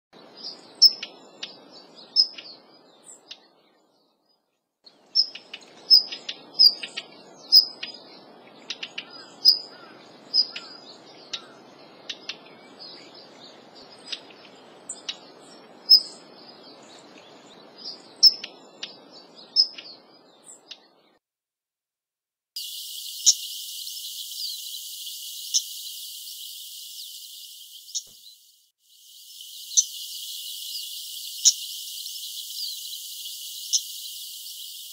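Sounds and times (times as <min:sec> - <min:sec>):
steady high hiss: 0:22.6 - 0:34.9.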